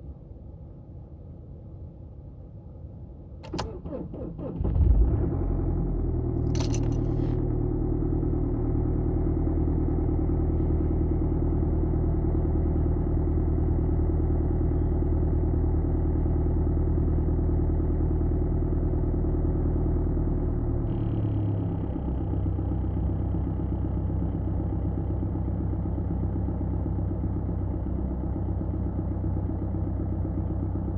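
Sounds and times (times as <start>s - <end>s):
diesel engine idling: 6.9s - 30.9s.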